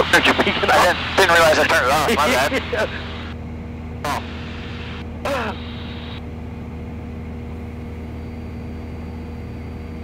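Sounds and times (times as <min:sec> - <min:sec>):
voice: 0:00.0 - 0:03.2, 0:05.3 - 0:05.6
light aircraft engine drone: 0:00.0 - 0:10.0.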